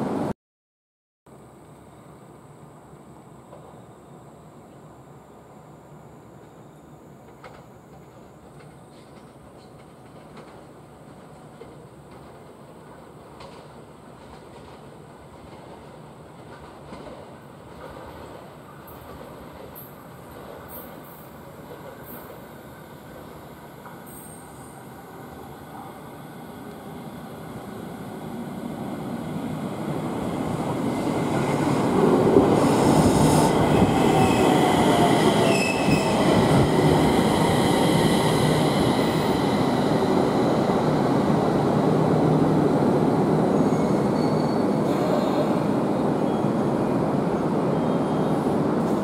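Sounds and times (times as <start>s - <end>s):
electric train braking: 23.8s - 42.0s
brake and wheel squeal: 43.6s - 45.4s.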